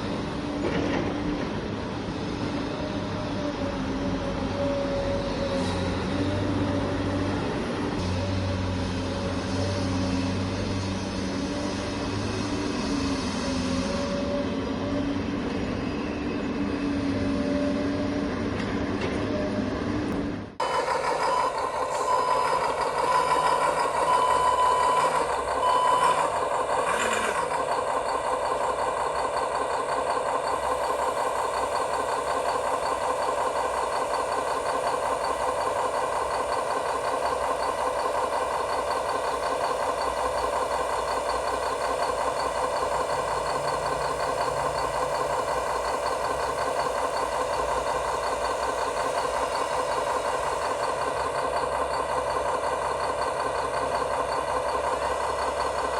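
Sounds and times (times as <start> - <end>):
brief electronic tone: 20.6 - 27.5.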